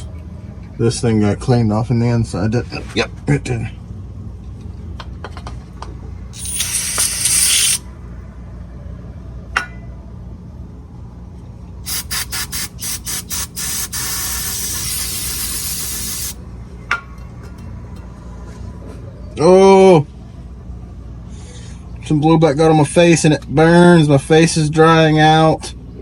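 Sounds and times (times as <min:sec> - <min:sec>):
aerosol spray can hissing: 0:06.4 - 0:07.8, 0:11.9 - 0:16.4.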